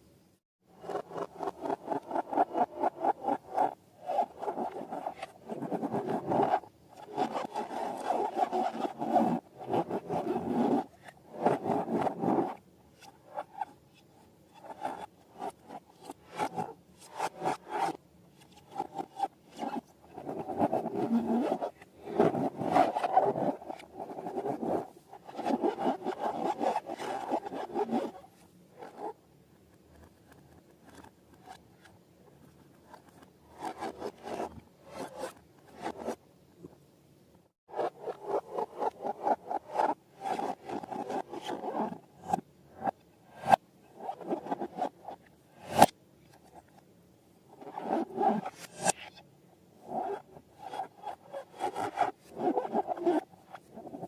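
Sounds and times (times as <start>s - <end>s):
slime rubbing and scraping: 18.7s - 28.2s.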